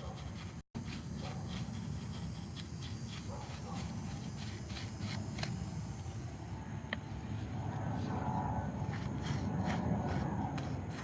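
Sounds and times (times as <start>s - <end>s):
paintbrush dabbing on concrete: 0.0s - 5.9s, 8.5s - 11.0s
low steady rumble: 3.9s - 11.0s.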